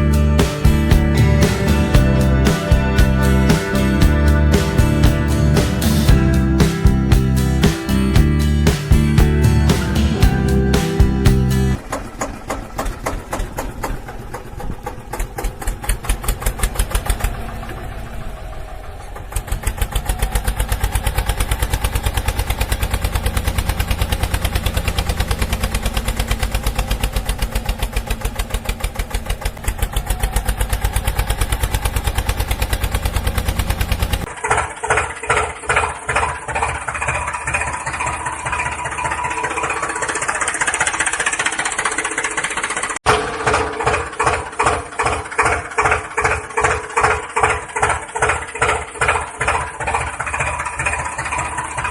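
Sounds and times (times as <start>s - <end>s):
small tractor engine putter: 11.7s - 51.9s.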